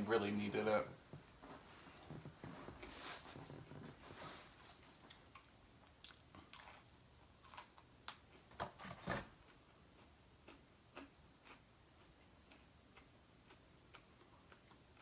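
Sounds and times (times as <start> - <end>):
person chewing fried chicken: 5.1 - 8.5, 9.4 - 15.0.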